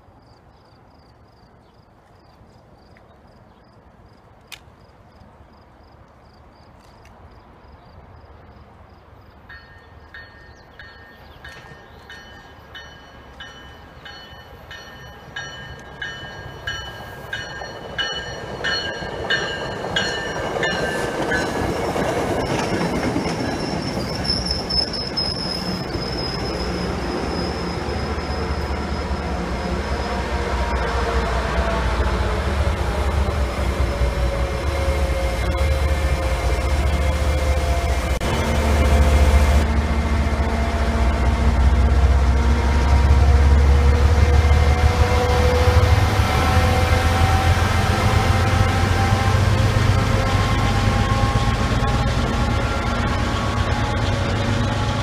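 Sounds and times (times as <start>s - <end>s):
train rumble passing: 3.1s - 55.0s
train warning bell ringing: 9.5s - 29.2s
high wheel squeal: 22.3s - 30.0s.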